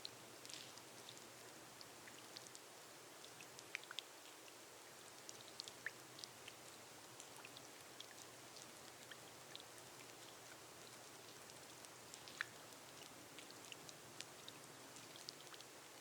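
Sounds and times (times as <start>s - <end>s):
gentle rain on glass roof: 0.0s - 16.0s
raindrops ticking: 5.2s - 16.0s.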